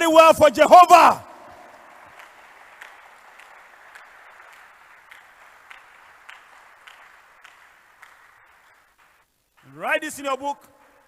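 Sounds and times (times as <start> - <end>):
congregation applauding: 0.0 - 11.0
single claps: 1.4 - 9.8.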